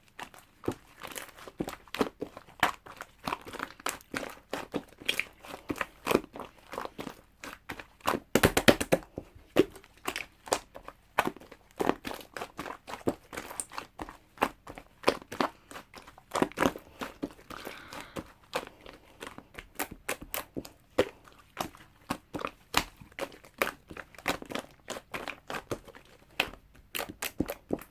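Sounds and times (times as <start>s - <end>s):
slime popping and clicking: 8.4s - 9.0s.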